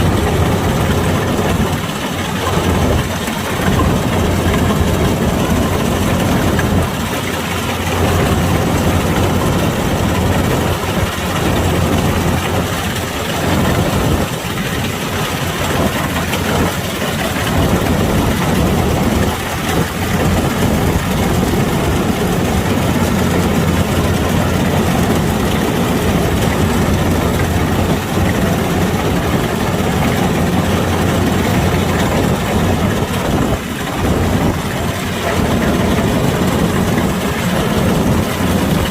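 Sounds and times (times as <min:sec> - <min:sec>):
combine harvester engine drone: 0:00.0 - 0:38.9.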